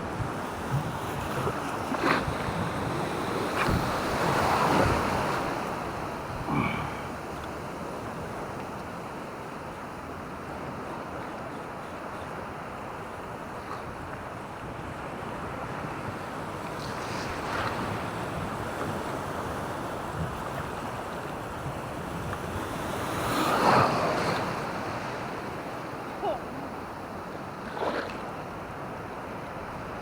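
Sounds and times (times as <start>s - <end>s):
surf washing onto beach: 0.0s - 7.2s.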